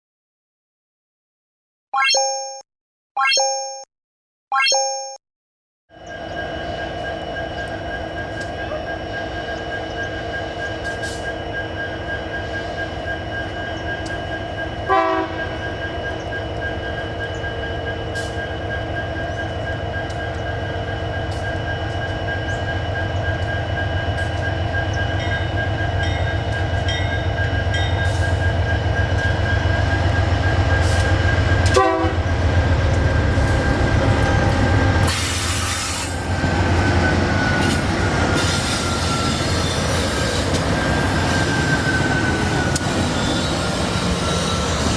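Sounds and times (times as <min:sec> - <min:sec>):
diesel freight train rumble: 0:05.9 - 0:44.9
train horn: 0:14.8 - 0:15.6, 0:30.8 - 0:32.3
high-pitched wheel squeal: 0:36.9 - 0:44.9.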